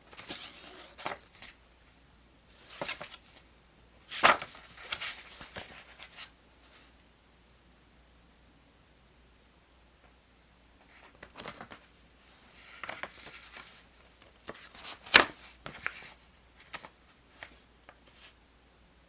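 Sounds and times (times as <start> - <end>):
paper rustling and crinkling: 0.0 - 1.6, 2.5 - 3.4, 4.0 - 6.9, 10.9 - 18.4.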